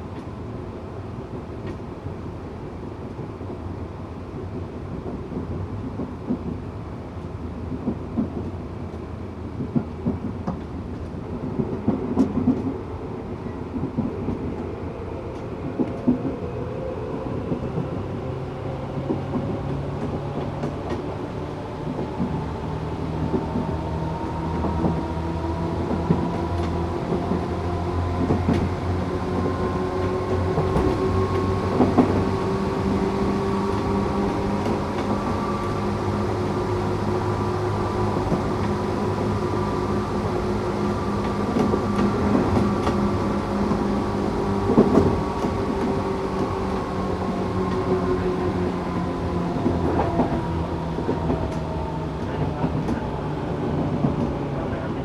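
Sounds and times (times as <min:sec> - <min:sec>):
wheel-on-rail rumble: 0:13.7 - 0:55.0
electric train motor whine: 0:23.6 - 0:54.0.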